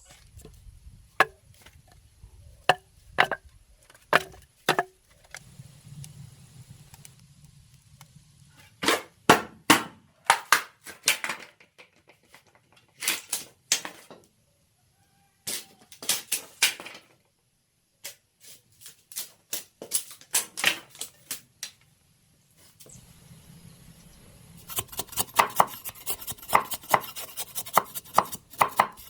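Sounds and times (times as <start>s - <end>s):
knife chopping on wooden board: 24.6s - 29.0s.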